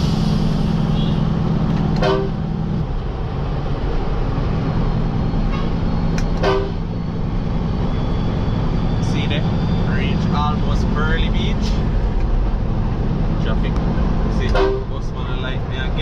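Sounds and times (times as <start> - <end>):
horn toots: 0.0 - 2.5, 6.4 - 6.9, 14.4 - 15.0
truck engine running: 0.0 - 16.0.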